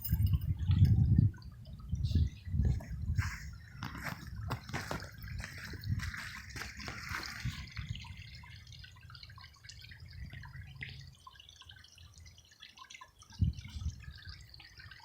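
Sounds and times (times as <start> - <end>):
small waterfall splashing: 3.7 - 10.1.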